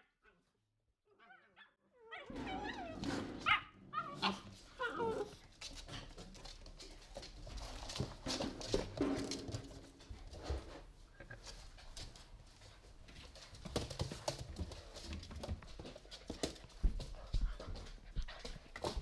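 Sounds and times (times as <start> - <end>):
puppies barking and whining: 1.1 - 6.2
puppies scuffling: 2.3 - 19.0.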